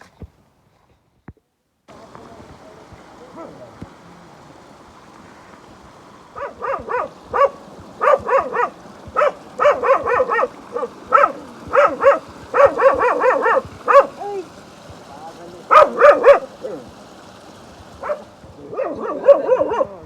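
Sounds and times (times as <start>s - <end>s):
dog barking: 3.3s - 3.7s, 6.4s - 14.4s, 15.7s - 16.9s, 18.0s - 20.0s.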